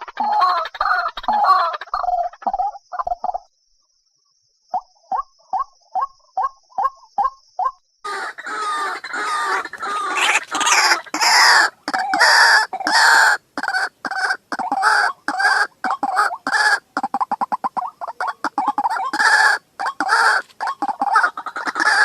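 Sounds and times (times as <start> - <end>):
waterhen clucking: 0.0 - 3.4, 8.1 - 22.0
waterhen croaking calls: 0.0 - 3.4, 8.1 - 22.0.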